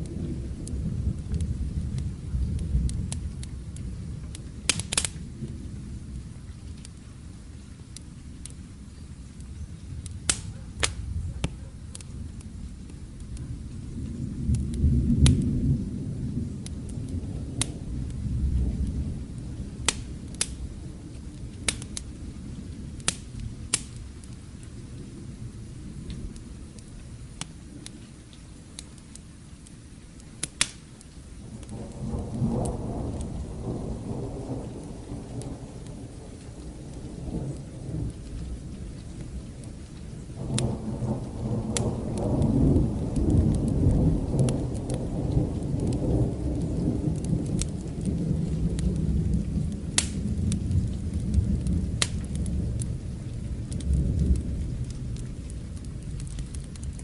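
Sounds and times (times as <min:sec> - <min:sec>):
distant thunder rolling: 0:00.0 - 0:06.8, 0:09.9 - 0:28.1, 0:31.4 - 0:57.0
steady rain: 0:00.0 - 0:57.0
wood fire crackling: 0:00.0 - 0:57.0.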